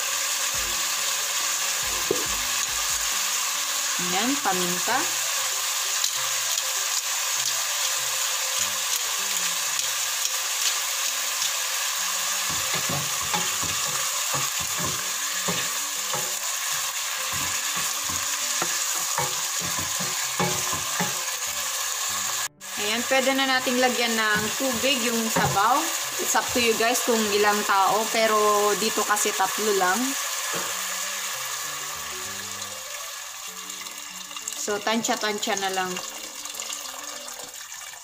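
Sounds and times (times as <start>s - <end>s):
chicken sizzling in hot oil: 0.0s - 38.0s
wooden spoon scraping a pot: 12.5s - 21.2s.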